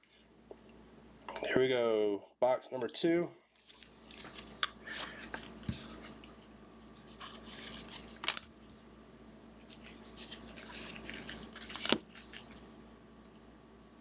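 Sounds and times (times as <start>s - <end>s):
packaging crinkling and rustling: 3.5s - 8.9s, 9.6s - 12.7s
sharp packaging snaps: 8.0s - 8.5s, 10.7s - 12.6s.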